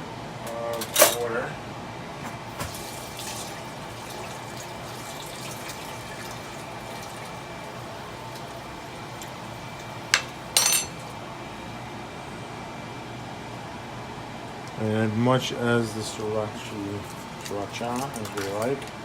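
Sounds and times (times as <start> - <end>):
steady kitchen hiss: 0.6 - 19.0
utensil clinking against dish: 10.1 - 11.0.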